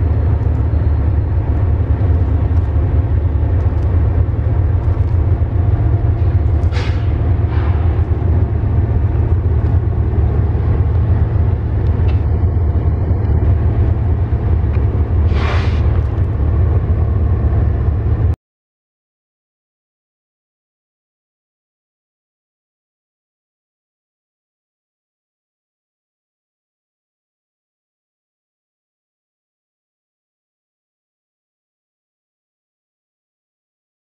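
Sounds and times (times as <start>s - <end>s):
freight train rumbling past: 0.0s - 18.4s
brief hisses: 6.7s - 7.1s, 15.3s - 15.9s.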